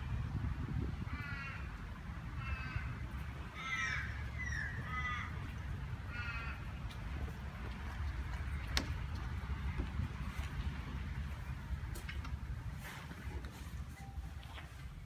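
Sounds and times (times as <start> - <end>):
bird cawing: 1.1 - 1.8, 2.4 - 6.8.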